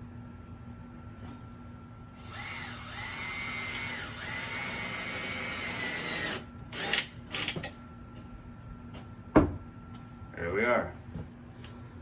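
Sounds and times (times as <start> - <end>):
power drill motor whining: 2.2 - 7.6.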